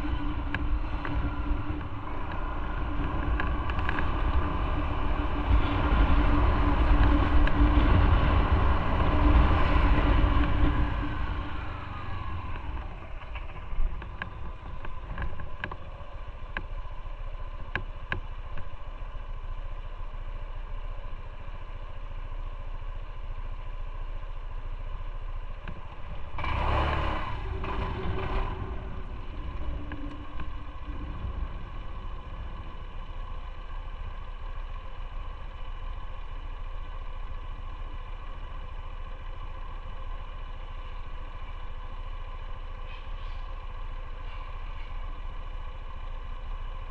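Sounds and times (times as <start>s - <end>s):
rush of noise: 0.0s - 16.7s, 25.6s - 35.0s
motorcycle engine running: 0.0s - 46.9s.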